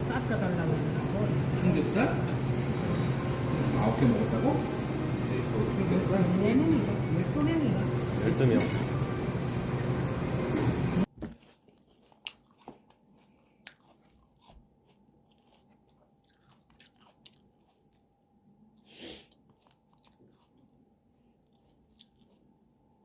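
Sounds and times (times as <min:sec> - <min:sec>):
clattering sizzling table noise: 0:00.0 - 0:09.5
person chewing food: 0:11.1 - 0:23.0.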